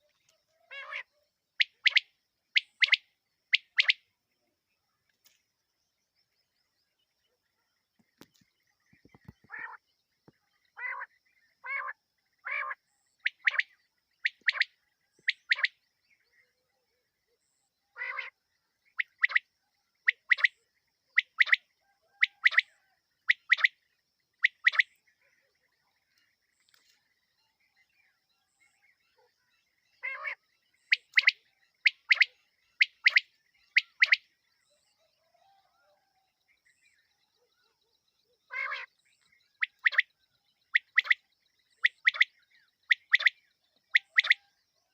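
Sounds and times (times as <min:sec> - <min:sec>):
quail calling: 0:00.0 - 0:04.0, 0:09.3 - 0:09.8, 0:10.8 - 0:15.8, 0:18.0 - 0:18.4, 0:20.0 - 0:20.6, 0:21.2 - 0:23.8, 0:24.4 - 0:24.9, 0:30.0 - 0:34.2, 0:38.5 - 0:38.9, 0:39.6 - 0:40.1, 0:40.7 - 0:41.2, 0:41.8 - 0:42.3, 0:42.9 - 0:44.5.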